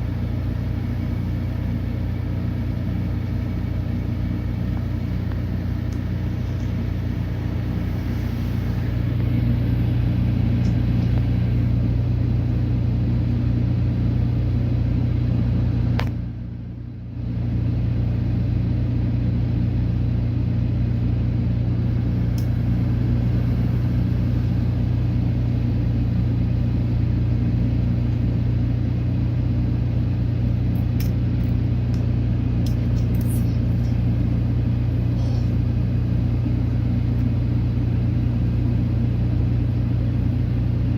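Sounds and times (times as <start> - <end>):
car engine rumbling: 0.0 - 40.9.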